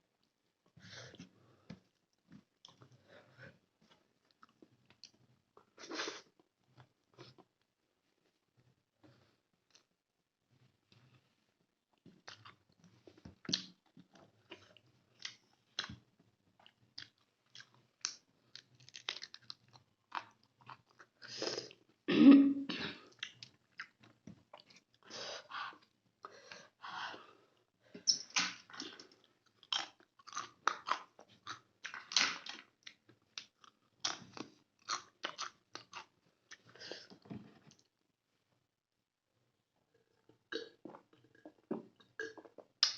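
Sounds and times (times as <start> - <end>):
chewing and wet mouth smacks: 13.4 - 16.0, 16.6 - 21.2, 23.1 - 25.0, 28.1 - 36.7.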